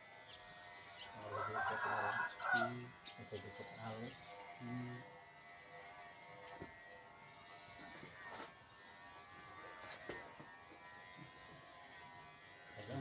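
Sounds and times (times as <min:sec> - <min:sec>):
electric hair clipper buzzing: 0:00.0 - 0:13.0.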